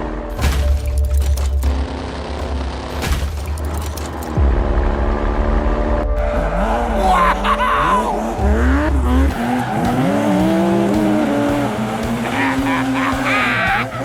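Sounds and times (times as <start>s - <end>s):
car engine revving: 1.3s - 14.0s
tyres squealing: 12.1s - 14.0s.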